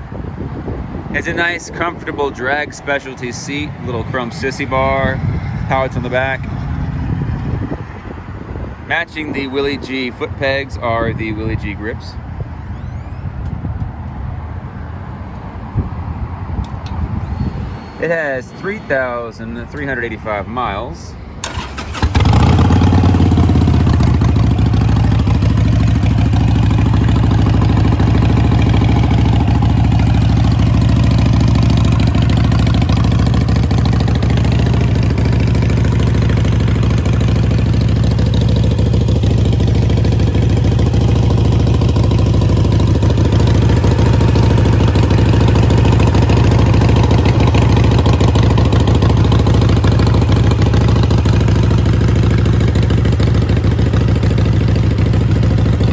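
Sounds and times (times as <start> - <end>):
motorcycle engine idling: 21.4 - 55.9.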